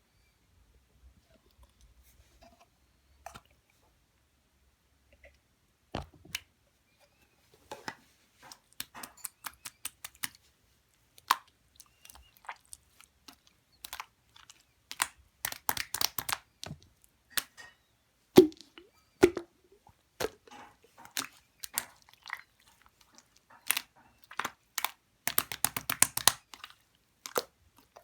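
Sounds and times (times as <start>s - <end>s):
sticky slime clicks and pops: 24.8s - 26.4s.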